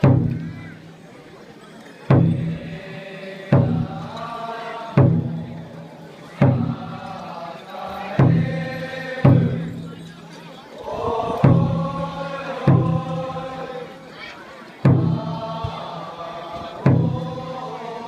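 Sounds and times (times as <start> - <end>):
drum beats: 0.0 - 1.0, 2.1 - 7.2, 7.9 - 10.0, 10.9 - 13.7, 14.8 - 18.0
group chanting: 2.2 - 10.0, 10.8 - 18.0.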